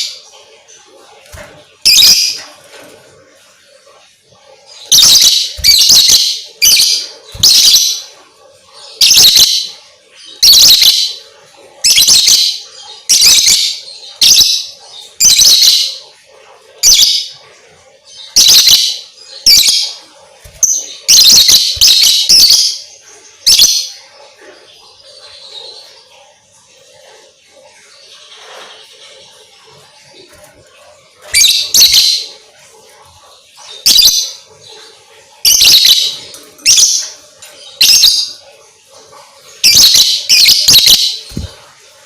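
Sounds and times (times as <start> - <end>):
bird shrill harsh chirps: 4.9 - 8.0, 20.5 - 22.8.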